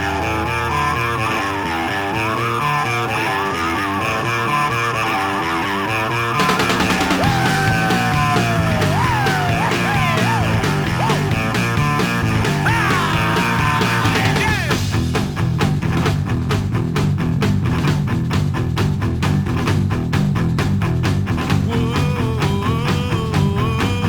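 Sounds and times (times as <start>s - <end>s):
sliding bending guitar notes: 0.0s - 22.8s
driving drum beat: 6.4s - 24.0s.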